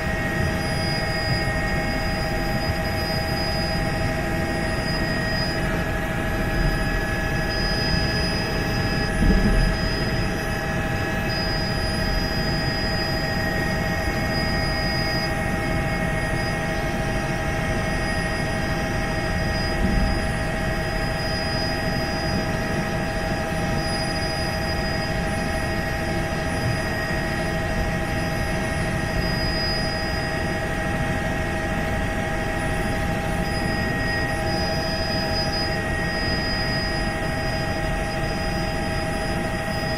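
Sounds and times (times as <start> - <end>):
high steady tones: 0.0 - 22.5
helicopter rotor and engine: 0.0 - 39.9.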